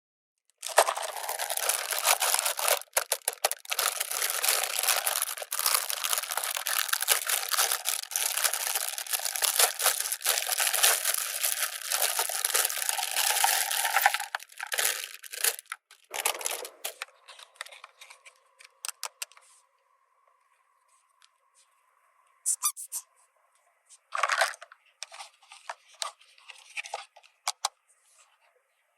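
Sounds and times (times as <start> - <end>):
packaging crinkling and tearing: 0.6 - 19.1.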